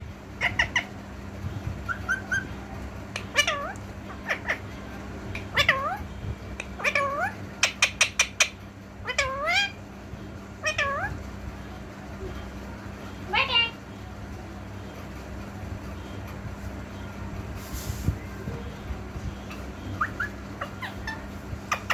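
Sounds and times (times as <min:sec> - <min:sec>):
parrot squawks: 0:00.4 - 0:00.9, 0:03.2 - 0:04.7, 0:05.4 - 0:09.8, 0:10.6 - 0:11.2, 0:20.0 - 0:21.9
parrot meow-like calls: 0:03.2 - 0:04.7, 0:05.4 - 0:06.1, 0:06.7 - 0:08.3, 0:09.0 - 0:09.8, 0:10.6 - 0:11.2.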